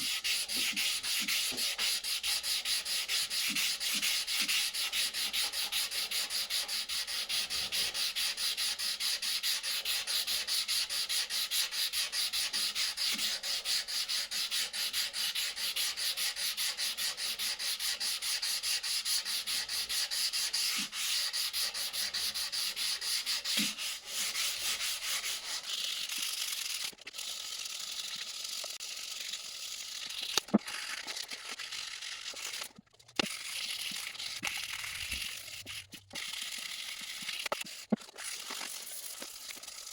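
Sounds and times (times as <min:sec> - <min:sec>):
hand sanding strokes: 0:00.0 - 0:26.9.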